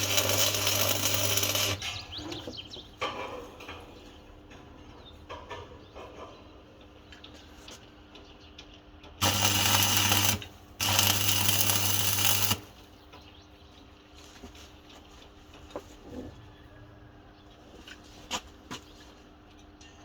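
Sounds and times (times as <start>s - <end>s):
arc welding buzzing hiss: 0.0s - 1.9s, 9.2s - 12.9s.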